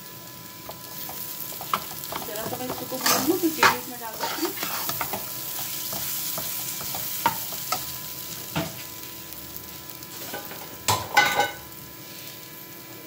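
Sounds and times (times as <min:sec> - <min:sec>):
paste sizzling in a pan: 0:00.0 - 0:13.0
metal spatula scraping a pan: 0:00.9 - 0:07.9.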